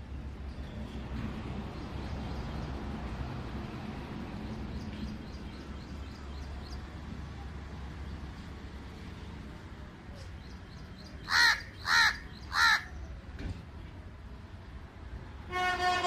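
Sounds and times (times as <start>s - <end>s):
bird chirping: 10.3s - 13.2s.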